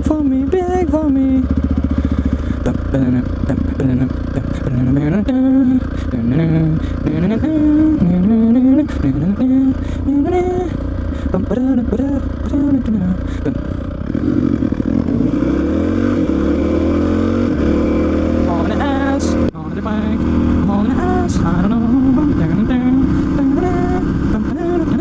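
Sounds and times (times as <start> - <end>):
motorcycle engine idling and accelerating: 0.0 - 25.0
man humming a tune: 2.2 - 14.0, 18.4 - 25.0.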